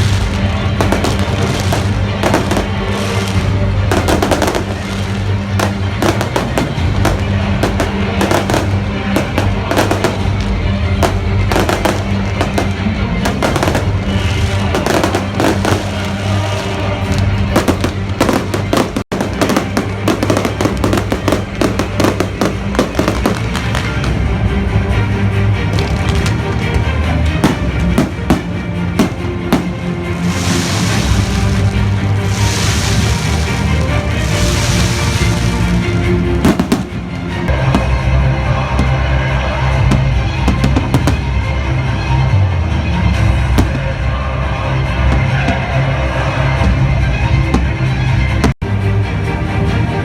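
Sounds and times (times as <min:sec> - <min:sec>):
fireworks bursting: 0:00.0 - 0:24.3, 0:25.8 - 0:41.6
loud music with bass: 0:11.0 - 0:15.9.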